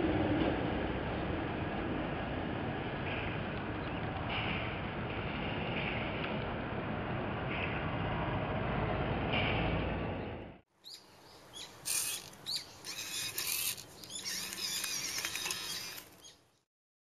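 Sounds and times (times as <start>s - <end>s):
outdoor ambience: 0.0s - 16.7s
small birds chirping: 10.8s - 16.7s
rustling: 11.8s - 16.3s.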